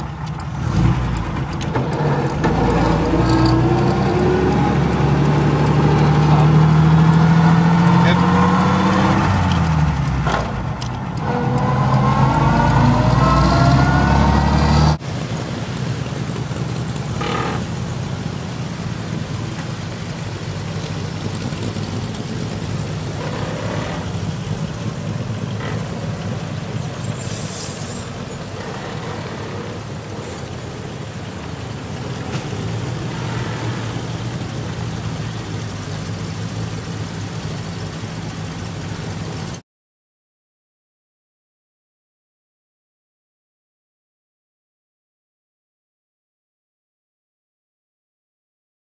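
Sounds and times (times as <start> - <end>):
vintage car engine running: 0.0 - 12.8, 15.4 - 27.2, 28.1 - 39.6
car engine pulling from inside: 0.3 - 15.0.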